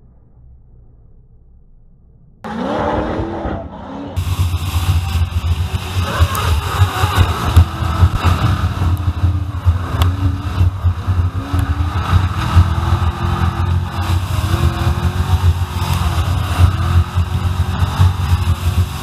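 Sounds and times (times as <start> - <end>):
car engine revving hard: 2.5 - 19.0
low wind buffeting: 4.2 - 19.0.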